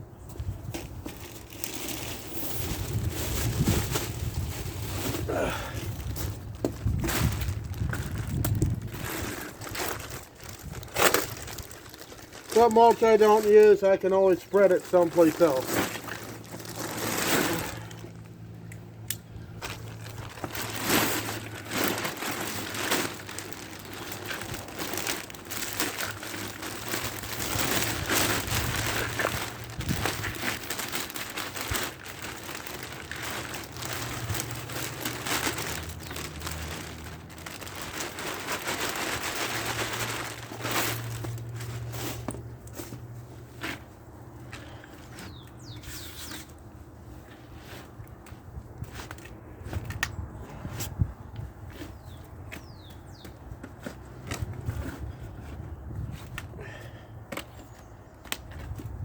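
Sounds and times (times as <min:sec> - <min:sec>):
wood mulch crunching: 0:00.4 - 0:51.0
plastic bag crinkling: 0:01.0 - 0:18.7, 0:19.3 - 0:43.0.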